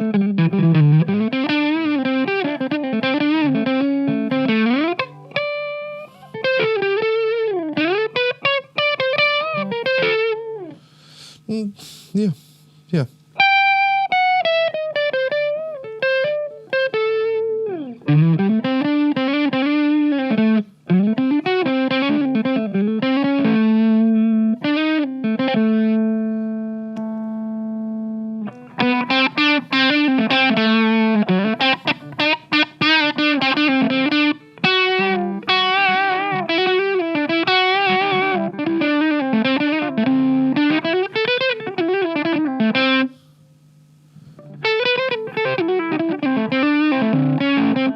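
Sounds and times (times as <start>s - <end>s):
overdriven electric guitar lead: 0.0s - 10.9s, 13.4s - 43.2s, 44.2s - 47.9s.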